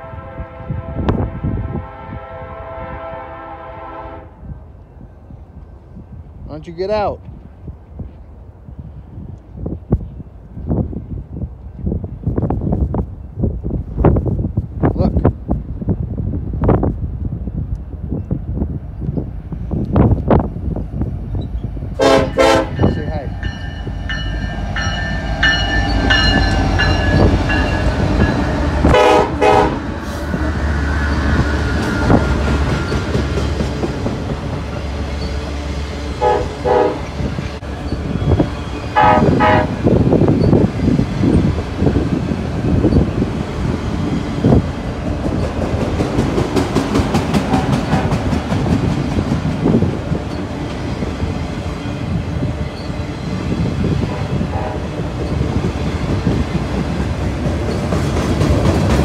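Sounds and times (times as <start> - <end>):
locomotive horn blasts: 0.0 - 4.5, 22.0 - 23.0, 28.8 - 29.9, 36.2 - 37.3, 39.0 - 40.0
heavy train rumble: 0.0 - 59.0
wheel clatter on rail joints: 39.8 - 51.4, 55.0 - 59.0.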